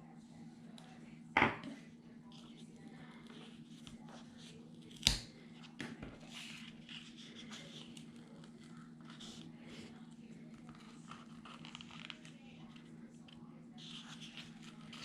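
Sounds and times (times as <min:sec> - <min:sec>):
steady low hum: 0:00.0 - 0:15.0
scissors snipping: 0:04.9 - 0:05.3
paper rustling: 0:10.6 - 0:12.8.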